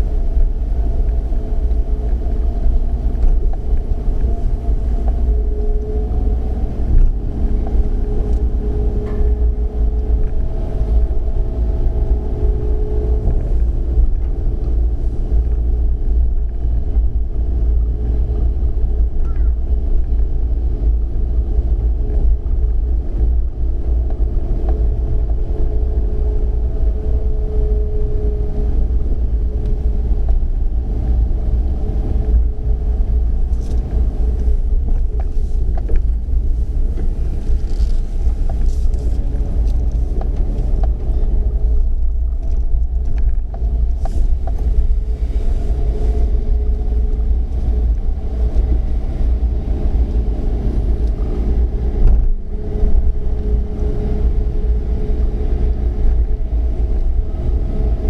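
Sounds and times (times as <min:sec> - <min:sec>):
faint drifting hum: 0:00.0 - 0:58.0
low engine rumble: 0:00.0 - 0:58.0.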